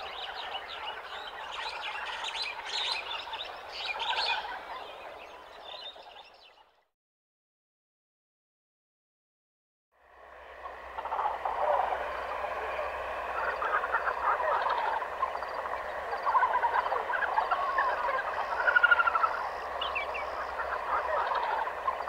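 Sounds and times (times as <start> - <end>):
birds chirping and calling: 0.0 - 6.6, 11.0 - 22.0
rapid bird trill: 13.3 - 22.0.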